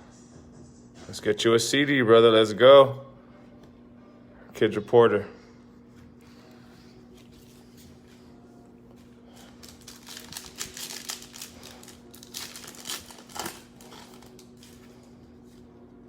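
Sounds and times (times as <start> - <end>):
faint steady hum: 2.0 - 16.0
wrapper crackling: 9.3 - 15.1.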